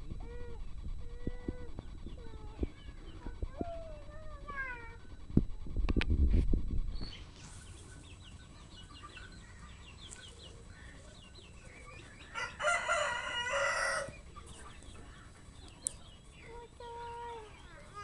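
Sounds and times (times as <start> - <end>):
rooster crowing: 12.3 - 14.2.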